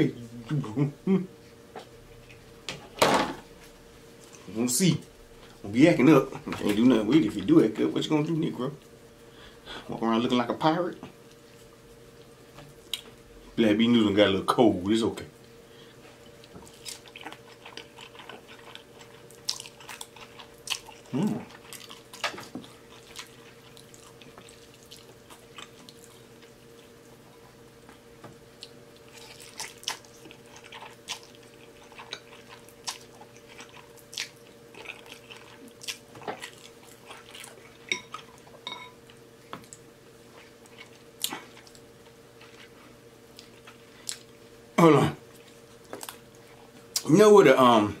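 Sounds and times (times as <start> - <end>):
wet chewing: 16.1 - 27.4, 28.5 - 44.4.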